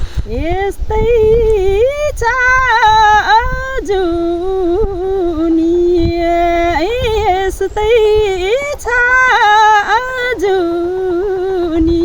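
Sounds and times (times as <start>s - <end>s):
woman singing unaccompanied: 0.0s - 12.0s.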